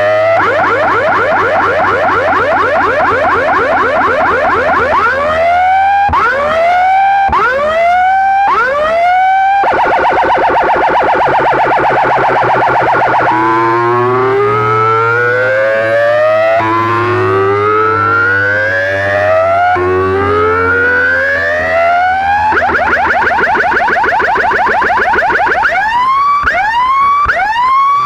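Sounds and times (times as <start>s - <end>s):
electronic siren effects: 0.0s - 28.0s.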